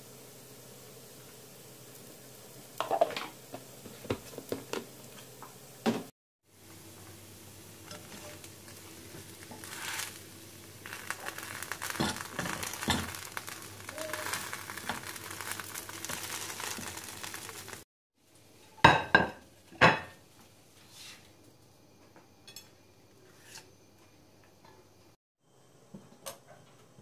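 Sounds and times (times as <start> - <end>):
food frying in a pan: 0.0 - 21.6
dishes clinking: 18.8 - 20.2.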